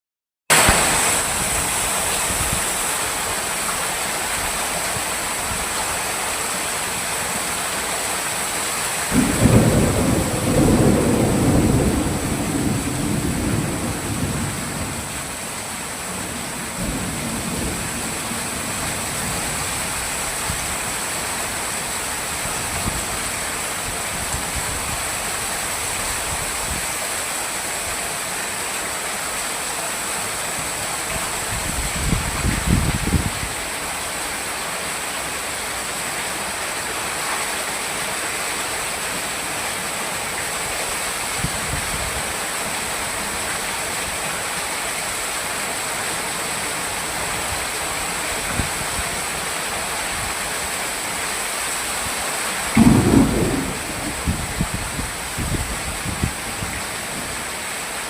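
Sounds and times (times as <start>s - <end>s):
heavy rain pouring: 0.5s - 58.0s
low thunder rumbles: 9.1s - 15.4s, 52.8s - 56.8s.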